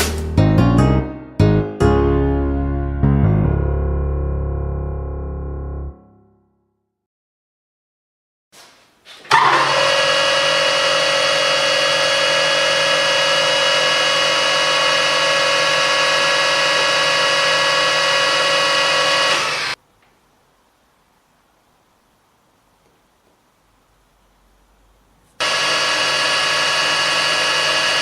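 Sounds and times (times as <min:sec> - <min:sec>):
metal lathe whining: 0:09.3 - 0:19.8, 0:25.4 - 0:28.0.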